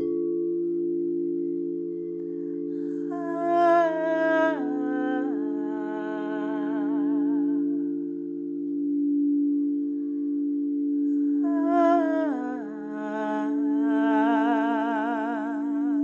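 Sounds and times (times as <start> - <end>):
crystal singing bowls chord: 0.0 - 16.0
person singing wordless note: 3.1 - 7.7, 11.4 - 16.0.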